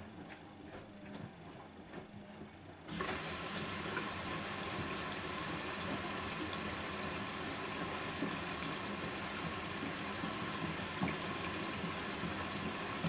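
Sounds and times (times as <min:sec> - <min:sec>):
water filling washing machine: 0:02.9 - 0:13.0.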